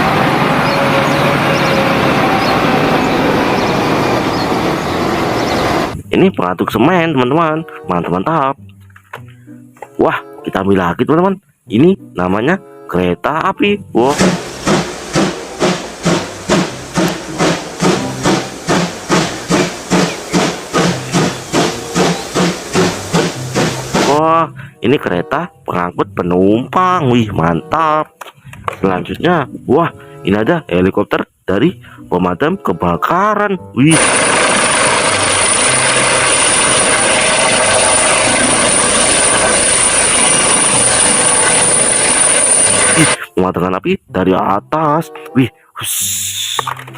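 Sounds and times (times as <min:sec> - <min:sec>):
helicopter rotor and engine: 0:00.0 - 0:05.9, 0:33.9 - 0:43.2
steam locomotive chuffing: 0:14.1 - 0:24.2, 0:33.9 - 0:43.2
thin high whine: 0:33.9 - 0:43.2.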